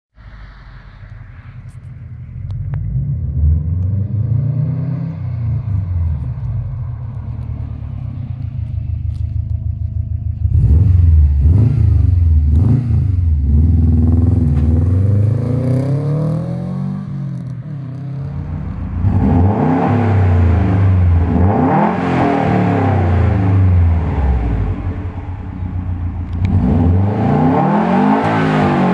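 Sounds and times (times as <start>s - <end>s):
car engine revving: 0.2s - 28.9s.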